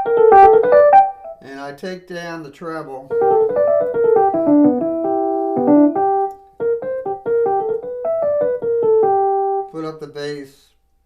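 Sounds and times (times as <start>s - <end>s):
bluesy electric piano phrase: 0.0s - 1.5s, 3.1s - 9.8s.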